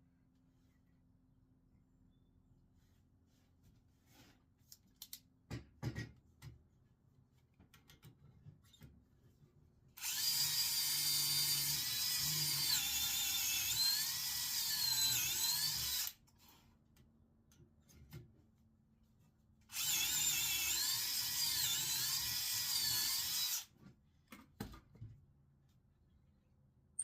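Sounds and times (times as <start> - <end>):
power drill running: 10.0 - 16.2, 19.7 - 23.7.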